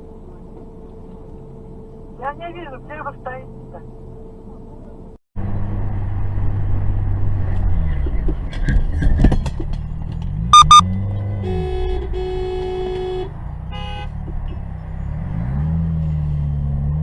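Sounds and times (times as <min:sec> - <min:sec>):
car horns beeping: 0:10.5 - 0:14.2.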